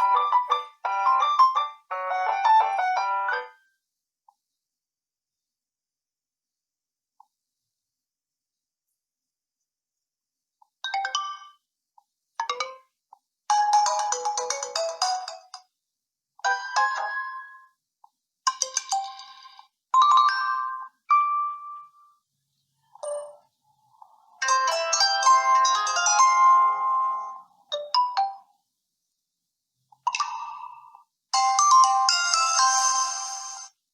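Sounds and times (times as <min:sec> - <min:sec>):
phone ringtone chimes: 0:00.0 - 0:03.6, 0:24.4 - 0:28.4, 0:31.4 - 0:33.7
ringtone melody: 0:00.0 - 0:03.6, 0:13.5 - 0:15.6, 0:16.4 - 0:17.7, 0:18.5 - 0:22.2, 0:23.0 - 0:28.5, 0:31.4 - 0:33.8.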